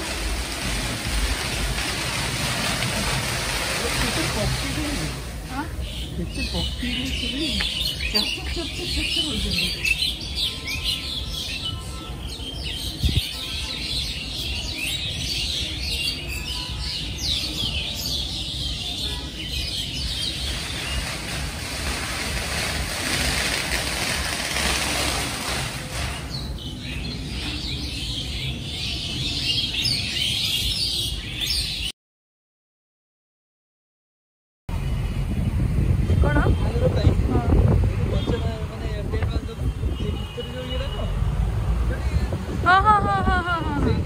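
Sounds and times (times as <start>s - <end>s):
rushing noise: 0.0s - 6.8s, 19.5s - 27.6s
small birds chirping: 0.0s - 31.9s.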